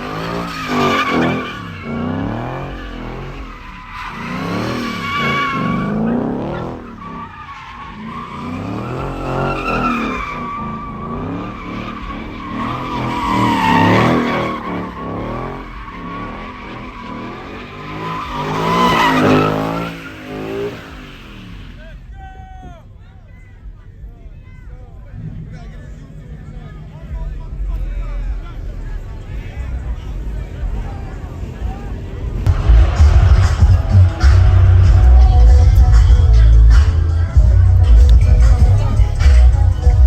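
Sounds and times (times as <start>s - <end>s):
car engine revving hard: 0.0s - 22.0s, 32.2s - 40.0s
tires squealing: 0.0s - 40.0s.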